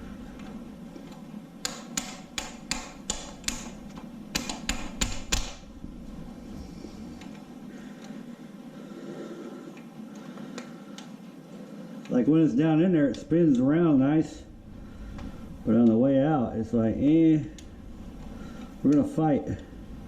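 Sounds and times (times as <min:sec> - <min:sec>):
sharp taps on metal: 0:01.6 - 0:05.6.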